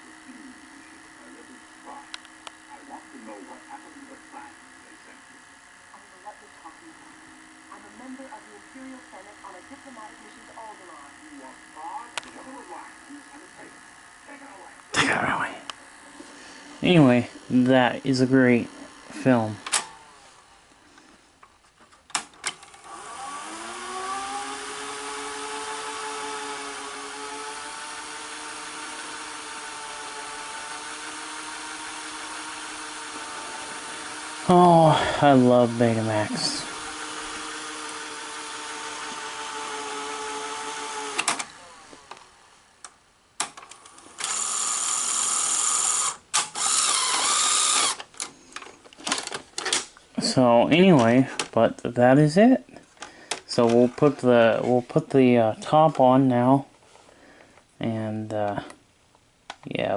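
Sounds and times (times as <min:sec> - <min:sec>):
video recorder running hum: 0:00.0 - 0:59.9
reel motor whirring: 0:15.8 - 0:20.6, 0:22.5 - 0:42.4, 0:43.5 - 0:48.3.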